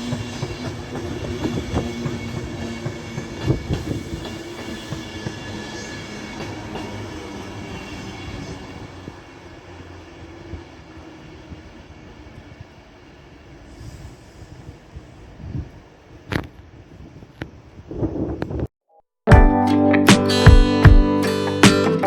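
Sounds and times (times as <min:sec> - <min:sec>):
train wheels clicking on rail joints: 0:00.0 - 0:09.0
train hum: 0:00.0 - 0:18.4.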